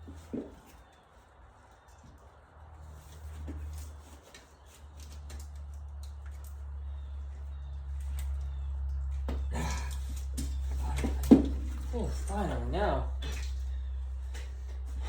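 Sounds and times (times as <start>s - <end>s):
hands handling engine parts: 0.0s - 15.0s.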